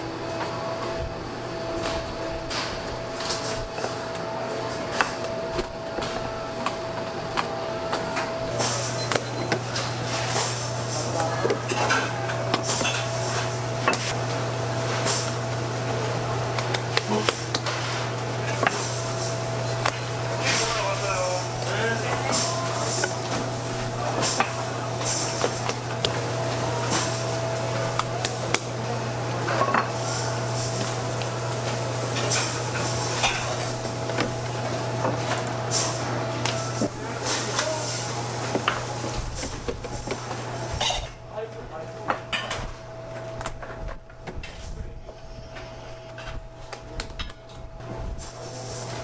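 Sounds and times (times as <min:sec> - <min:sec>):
low machine hum: 0:00.0 - 0:49.0
metal pans and utensils clattering: 0:40.7 - 0:41.2.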